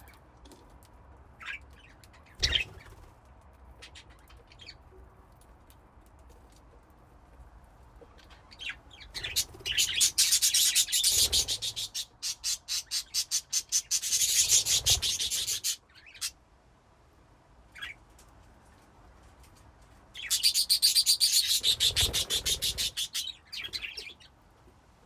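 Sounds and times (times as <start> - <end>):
budgies chirping and chattering: 1.4 - 2.9, 8.2 - 16.3, 20.2 - 24.2.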